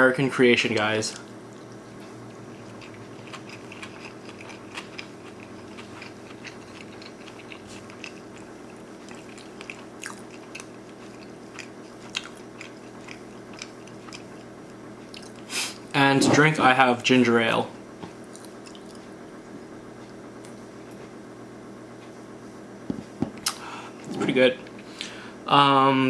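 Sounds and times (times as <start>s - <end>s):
steady low hum: 0.0s - 26.0s
close chewing with wet mouth clicks: 1.2s - 15.5s, 18.3s - 19.0s.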